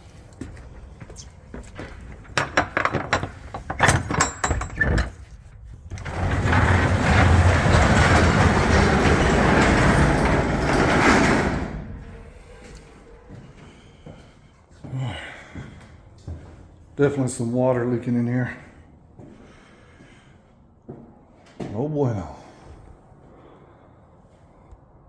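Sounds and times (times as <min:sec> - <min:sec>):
roll-up door rattling: 0:01.7 - 0:12.4
metal clanks of door latch: 0:01.8 - 0:05.2.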